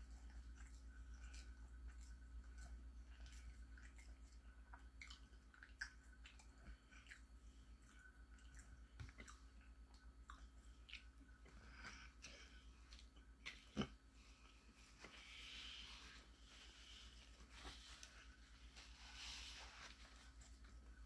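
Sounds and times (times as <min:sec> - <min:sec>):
soft chewing: 0:00.0 - 0:21.0.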